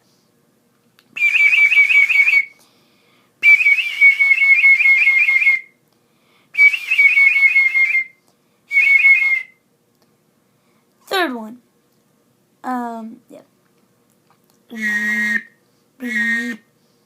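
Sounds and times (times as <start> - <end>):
person whistling bird call: 1.2 - 2.6, 3.4 - 5.7, 6.6 - 9.6, 14.7 - 16.7.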